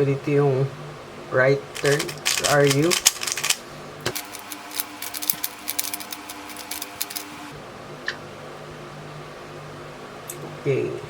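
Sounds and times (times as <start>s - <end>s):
faint steady hum: 0.0s - 11.0s
speed cube clicking: 1.8s - 7.5s.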